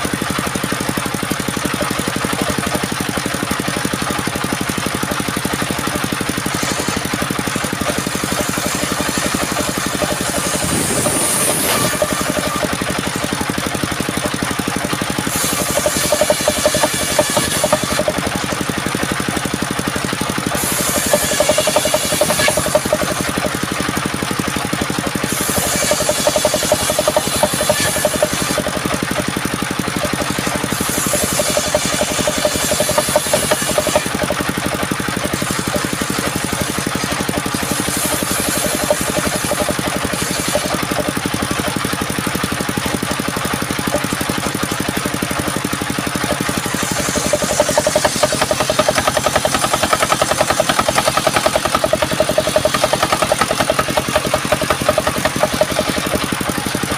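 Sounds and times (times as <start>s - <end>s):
sawmill machine engine running: 0.0s - 56.9s
saw hissing: 6.3s - 13.4s, 15.1s - 18.3s, 20.4s - 23.6s, 25.2s - 29.3s, 29.9s - 42.0s, 46.0s - 56.4s.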